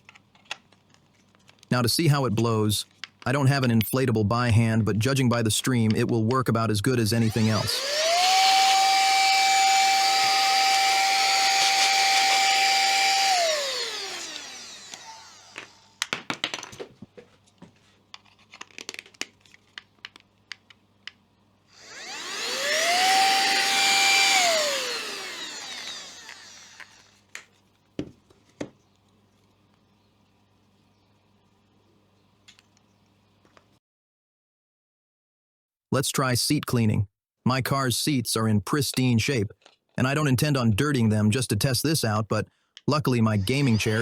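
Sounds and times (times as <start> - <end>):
clicks and handling knocks: 0.0 - 1.7, 2.8 - 3.3, 14.8 - 21.2
handheld blower motor whine: 7.1 - 16.0, 21.7 - 27.5, 43.3 - 44.0.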